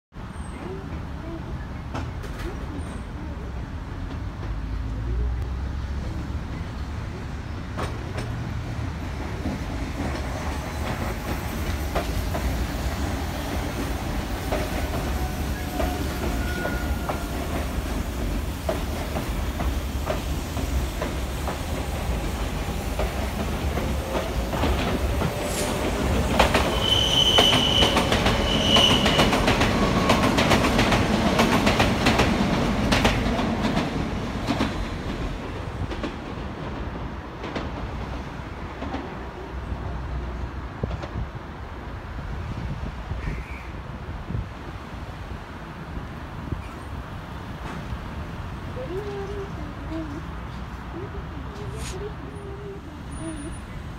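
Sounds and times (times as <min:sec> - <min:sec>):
electric train rumble: 0:06.1 - 0:43.2
high-pitched wheel squeals: 0:15.2 - 0:17.3, 0:26.6 - 0:30.2.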